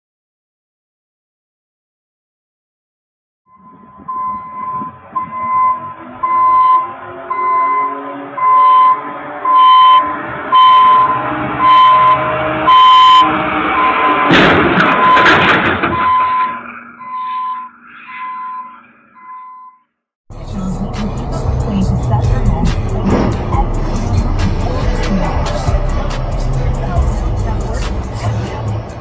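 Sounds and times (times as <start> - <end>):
electronic beeper short beeps: 3.5 - 14.3, 16.0 - 19.8.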